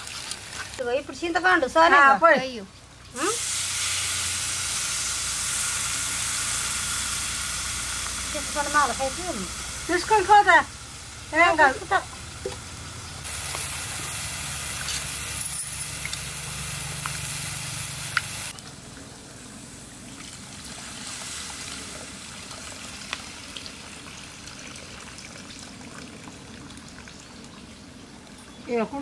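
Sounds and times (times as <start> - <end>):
curry sizzling in a pan: 3.2 - 18.6.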